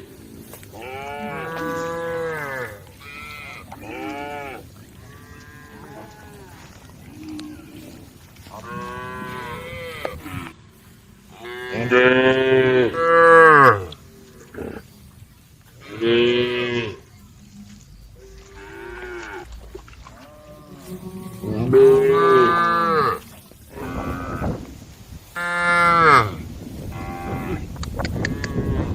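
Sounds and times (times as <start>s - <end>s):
cows mooing: 0.0s - 10.6s, 11.3s - 14.9s, 18.2s - 24.7s, 25.4s - 28.9s.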